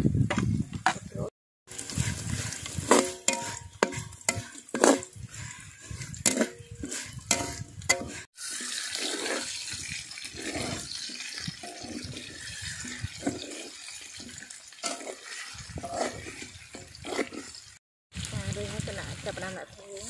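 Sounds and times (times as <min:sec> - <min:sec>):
metal spatula scraping in wok: 0:01.7 - 0:17.8
chicken sizzling in wok: 0:01.7 - 0:20.0.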